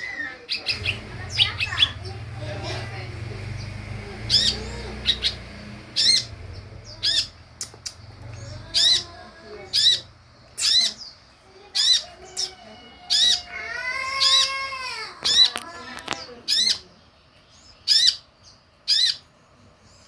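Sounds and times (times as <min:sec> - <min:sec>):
bird high chattering call: 0:03.6 - 0:14.6, 0:17.8 - 0:18.3, 0:18.9 - 0:19.3.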